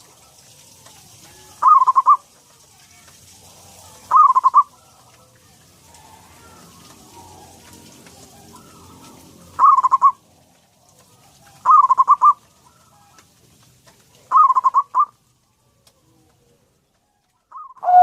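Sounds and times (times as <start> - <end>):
dove cooing: 0.0 - 2.4, 3.5 - 10.2, 11.0 - 13.1, 14.2 - 15.2, 17.5 - 18.0.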